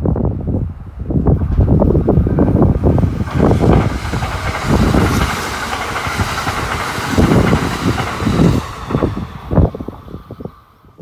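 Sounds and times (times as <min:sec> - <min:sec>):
electric train passing at speed: 0:00.0 - 0:11.0
wind on microphone: 0:00.0 - 0:11.0.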